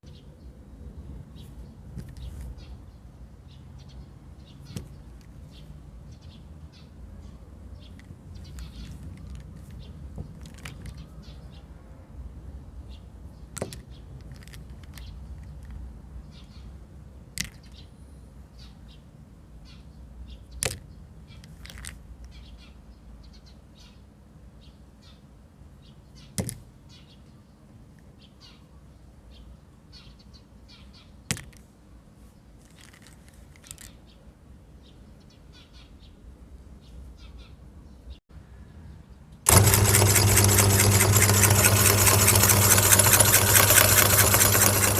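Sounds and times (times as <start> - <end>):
meat grinder motor humming: 39.5 - 44.9
sharp clicks: 39.5 - 44.9.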